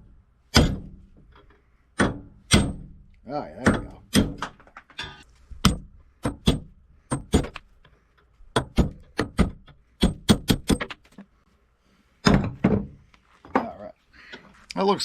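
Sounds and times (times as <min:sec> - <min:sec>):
hammer striking steel punch: 0:00.5 - 0:01.0, 0:02.0 - 0:07.6.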